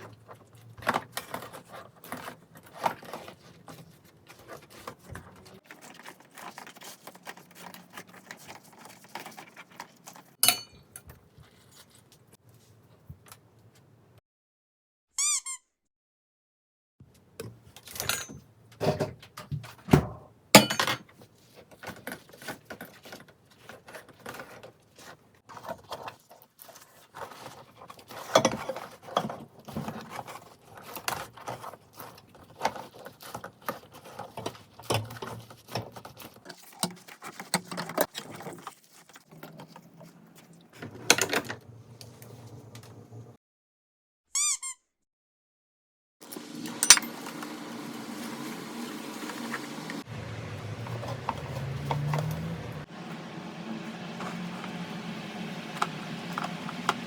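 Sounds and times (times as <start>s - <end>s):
kitchen containers and utensils handled: 0.0s - 13.4s, 17.1s - 43.2s, 46.2s - 57.0s
short squeaky chirp: 15.2s - 15.8s, 44.3s - 44.9s.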